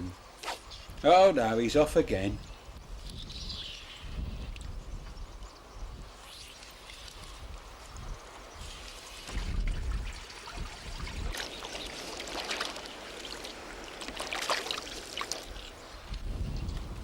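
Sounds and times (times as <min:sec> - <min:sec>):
wind rumble on microphone: 0:01.8 - 0:06.3, 0:07.0 - 0:11.6, 0:15.4 - 0:17.0
river water splashing and trickling: 0:06.3 - 0:16.3.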